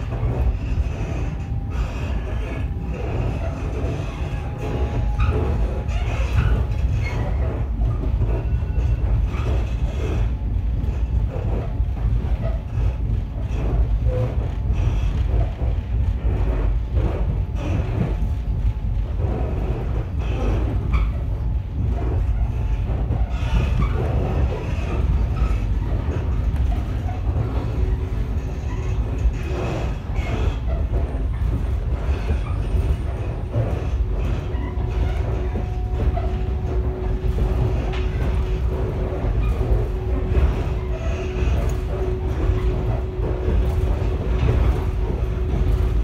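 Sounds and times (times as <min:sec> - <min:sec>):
steady humming tone: 0:00.0 - 0:12.1, 0:16.0 - 0:46.0
railcar rumbling: 0:00.0 - 0:46.0
wheel clacks over rail joints: 0:19.1 - 0:46.0.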